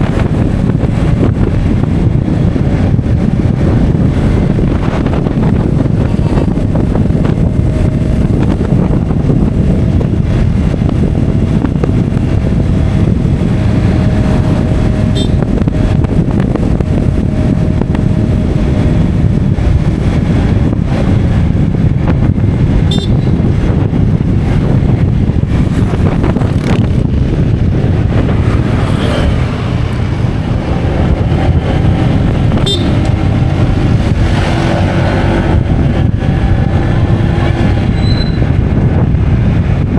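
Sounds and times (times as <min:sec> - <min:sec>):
vehicle engine: 0:00.0 - 0:39.9
wind rumble on microphone: 0:00.0 - 0:39.9.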